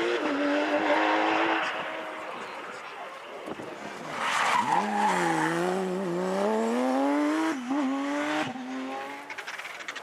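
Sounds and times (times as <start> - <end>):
rally car engine accelerating: 4.6 - 9.5.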